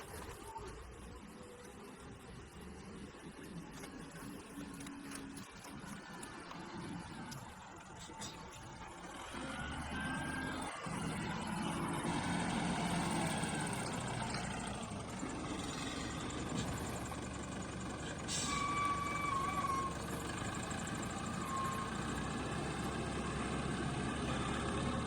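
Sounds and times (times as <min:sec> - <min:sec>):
wavering whistle-like tone: 0:15.5 - 0:22.9.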